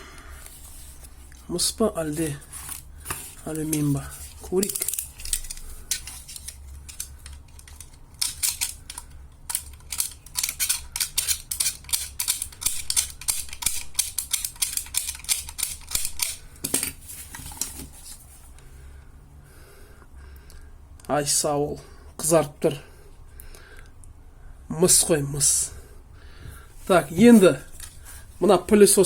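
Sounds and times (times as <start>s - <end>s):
hand tool snipping copper winding: 4.6s - 16.4s.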